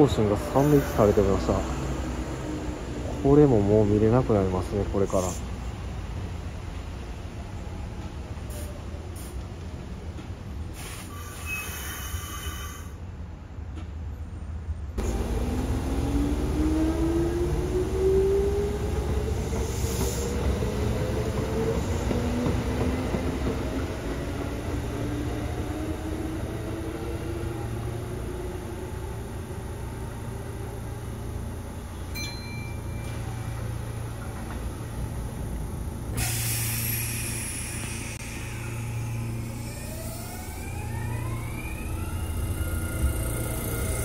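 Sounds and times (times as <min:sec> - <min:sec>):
electric trains rumbling: 0:00.0 - 0:44.0
train motor whine rising: 0:15.0 - 0:20.6, 0:36.0 - 0:44.0.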